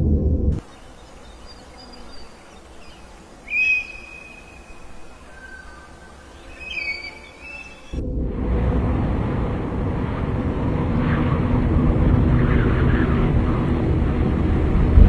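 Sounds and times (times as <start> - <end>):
loud low rumble: 0.0 - 0.7, 8.0 - 15.0
bird whistling: 0.6 - 8.0.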